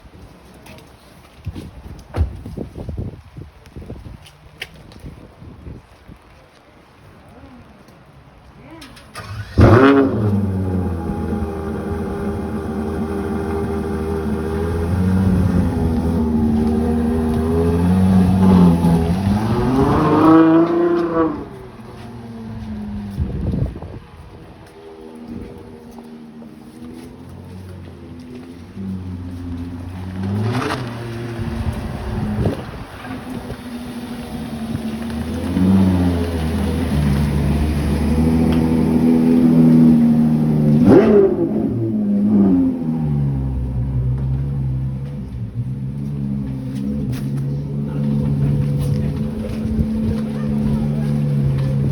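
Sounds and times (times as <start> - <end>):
car engine idling: 9.1 - 20.6, 26.3 - 40.9, 42.2 - 51.9.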